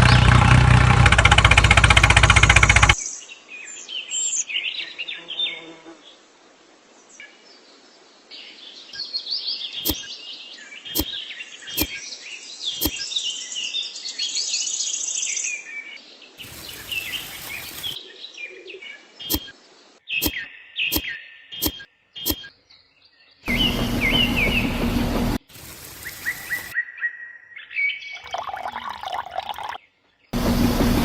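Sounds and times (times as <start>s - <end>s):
small birds chirping: 7.5s - 30.3s
sharp clicks: 9.8s - 10.1s, 12.8s - 13.0s
short burst of hiss: 16.4s - 18.0s.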